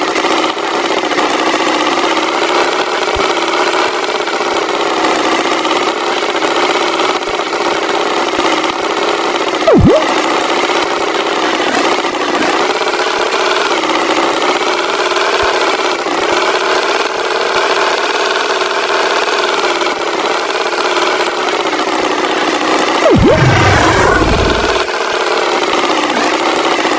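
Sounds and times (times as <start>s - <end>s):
swooping tone: 9.7s - 10.2s, 23.0s - 24.9s.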